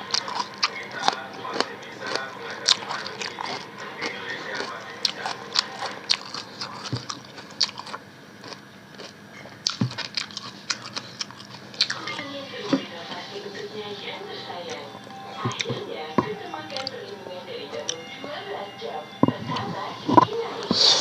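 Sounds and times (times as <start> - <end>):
biting and chewing food: 0.0 - 13.2, 14.6 - 21.0
wet mouth clicks: 9.4 - 12.0.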